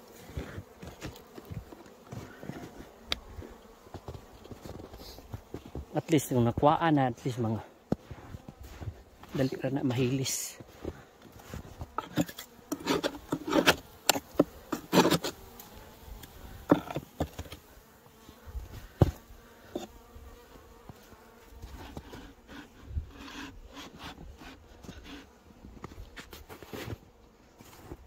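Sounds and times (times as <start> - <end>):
honeybees buzzing: 0.0 - 28.0
sharp knocks and scrapes: 11.9 - 15.4, 16.7 - 17.6.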